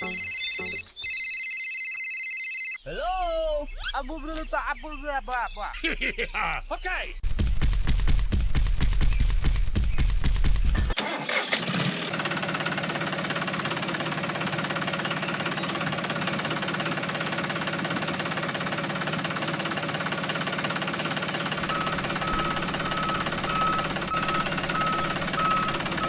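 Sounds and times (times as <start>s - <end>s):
short high beeps: 0.0s - 1.2s, 21.6s - 26.0s
small motor buzzing: 21.0s - 26.0s.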